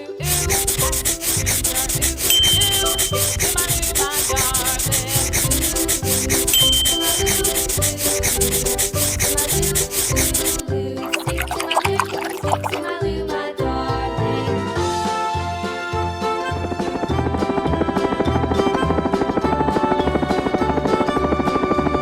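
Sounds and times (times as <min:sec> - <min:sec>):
background music: 0:00.1 - 0:22.0
drawing tool scratching on paper: 0:02.8 - 0:10.6.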